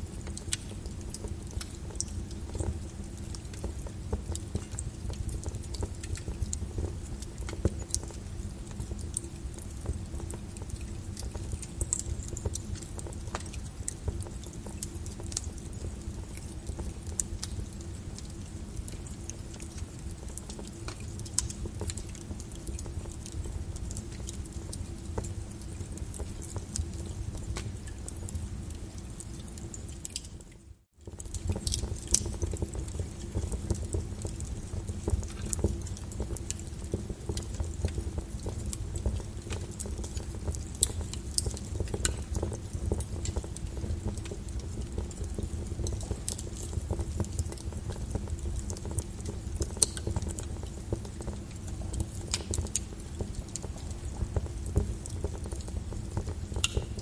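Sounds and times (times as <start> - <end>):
log fire crackling: 0.0 - 57.0
rain on a window: 0.0 - 57.0.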